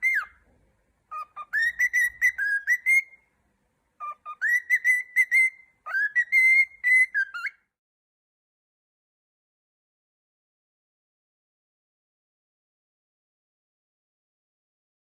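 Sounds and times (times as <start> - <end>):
cockatiel whistling: 0.0 - 0.4, 1.1 - 3.2, 4.0 - 7.7.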